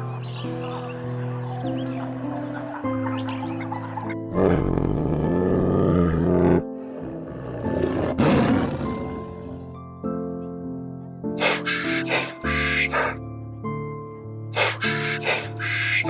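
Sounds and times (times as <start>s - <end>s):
background music: 0.0s - 16.0s
animal roaring: 4.3s - 9.8s.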